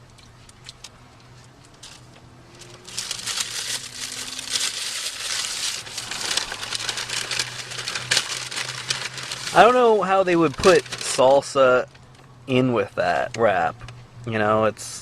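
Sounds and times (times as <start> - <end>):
paper wrapper crinkling: 1.8 - 11.9.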